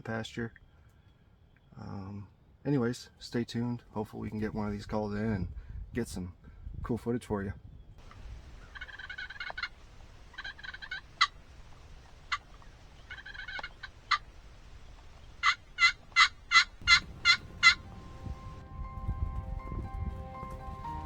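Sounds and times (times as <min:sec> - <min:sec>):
turkey gobbling: 0:08.0 - 0:18.6
turkey yelps: 0:08.0 - 0:18.6.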